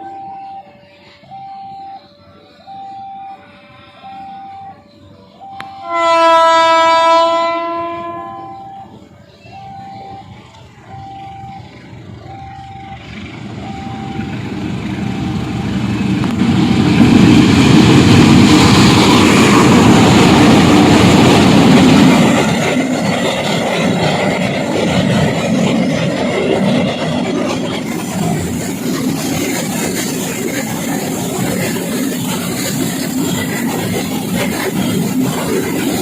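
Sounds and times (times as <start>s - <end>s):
train passing: 0.0s - 36.0s
short single-pitched tone: 8.2s - 15.5s.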